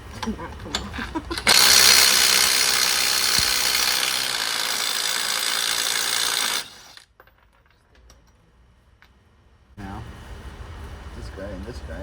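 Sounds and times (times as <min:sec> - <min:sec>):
power tool running: 0:01.4 - 0:07.0.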